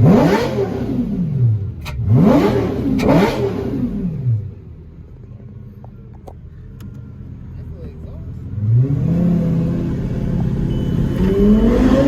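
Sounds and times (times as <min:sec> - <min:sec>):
sports car engine revving: 0:00.0 - 0:04.7, 0:08.4 - 0:12.0.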